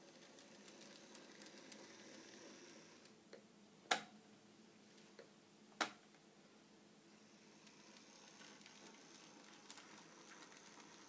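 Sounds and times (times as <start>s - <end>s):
model train running on track: 0.0s - 3.0s, 7.6s - 11.0s.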